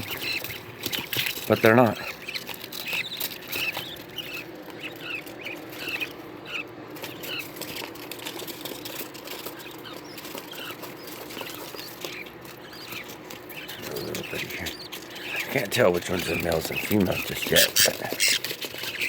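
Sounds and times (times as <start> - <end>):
light clicks and rustling: 0.0 - 6.2
cage birds chirping: 0.0 - 19.0.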